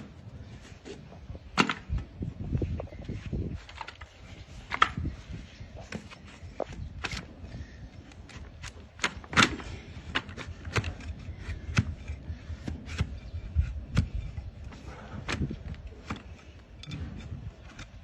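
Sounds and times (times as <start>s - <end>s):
tools cutting hoof: 5.9s - 18.0s.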